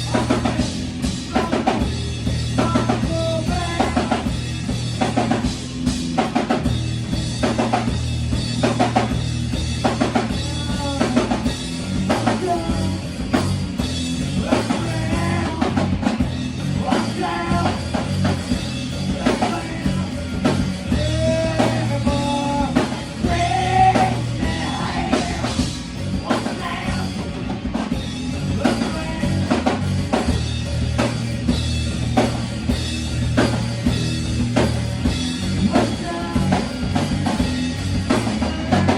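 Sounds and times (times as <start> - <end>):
bass line: 0.0 - 38.9
drum kit beat: 0.0 - 38.9
person singing: 2.6 - 4.4, 16.8 - 17.9, 20.9 - 25.6, 26.2 - 27.3, 35.7 - 36.8, 38.4 - 38.9.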